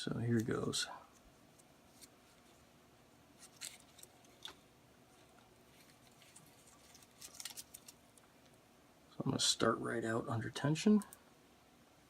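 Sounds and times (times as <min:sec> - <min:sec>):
tape crinkling and clicking: 0:01.2 - 0:02.6, 0:03.4 - 0:08.6.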